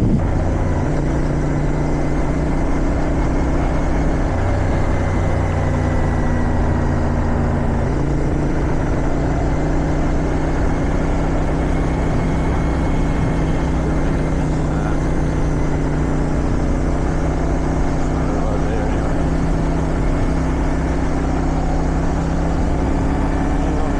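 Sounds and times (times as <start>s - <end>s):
wind noise: 0.0s - 0.6s
motorcycle engine running: 0.0s - 23.9s.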